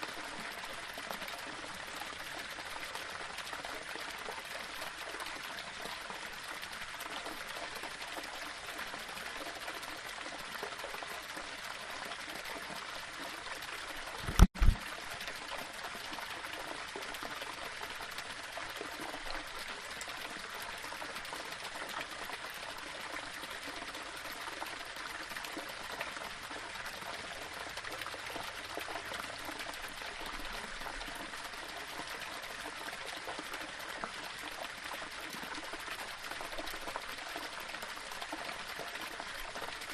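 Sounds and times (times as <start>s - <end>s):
waterfall running over rocks: 0.0s - 39.9s
sharp low thumps: 14.2s - 14.8s.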